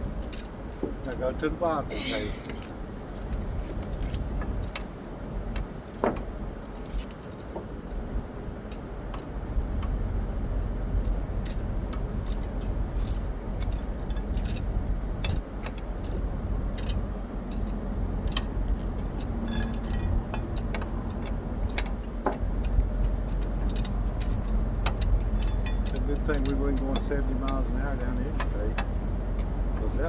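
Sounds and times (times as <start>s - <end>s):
low vehicle rumble: 7.6s - 30.0s
hand tools clinking on metal: 19.5s - 20.9s, 24.9s - 28.9s.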